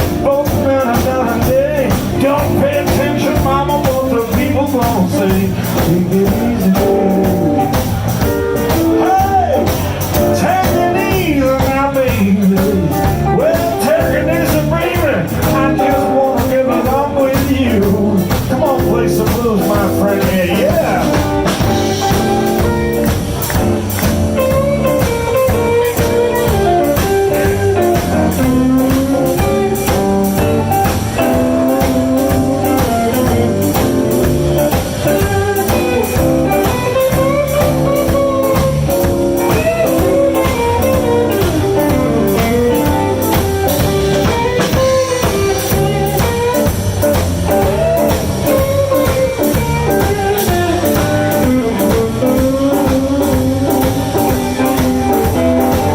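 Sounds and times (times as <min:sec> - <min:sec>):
bass guitar: 0:00.0 - 0:55.9
drum kit beat: 0:00.0 - 0:55.9
lead guitar solo: 0:20.5 - 0:55.9.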